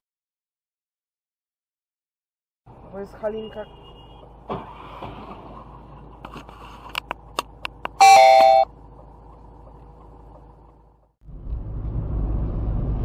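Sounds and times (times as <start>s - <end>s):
electronic two-note chime: 8.0s - 8.7s.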